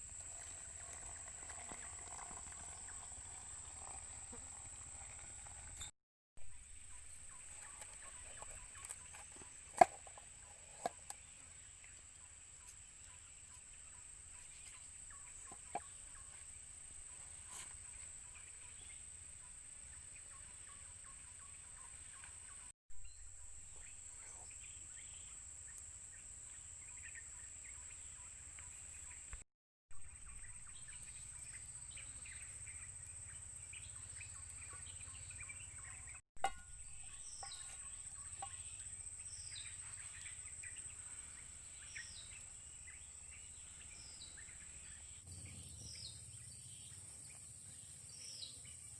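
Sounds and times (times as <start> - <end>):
bird calls: 30.0 - 48.9
insects droning: 30.0 - 48.9.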